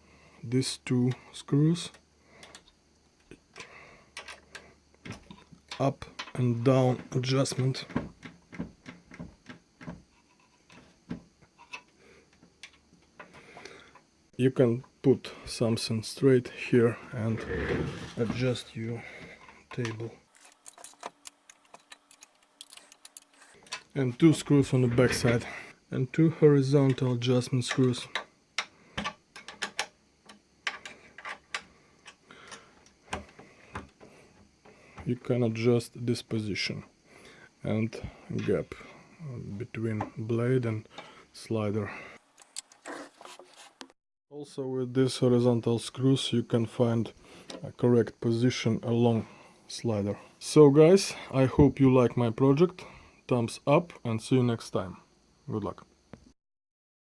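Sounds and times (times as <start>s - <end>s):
small parts clicking and tapping: 1.9s - 14.0s, 19.3s - 24.5s, 26.8s - 35.1s, 42.3s - 43.0s
small metal parts clicking: 2.4s - 4.6s, 19.7s - 23.9s, 27.7s - 32.6s.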